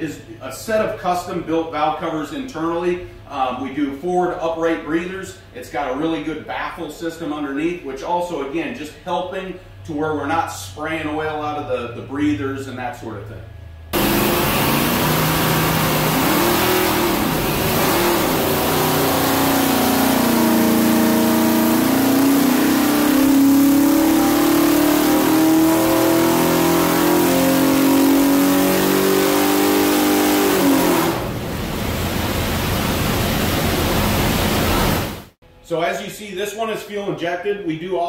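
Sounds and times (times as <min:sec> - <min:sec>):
car engine revving: 0:13.9 - 0:35.4.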